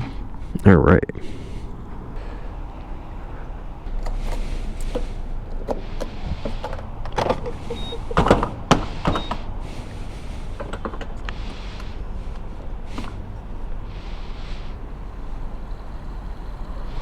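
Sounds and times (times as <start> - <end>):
clicks and rustling from handling: 4.0 - 13.4.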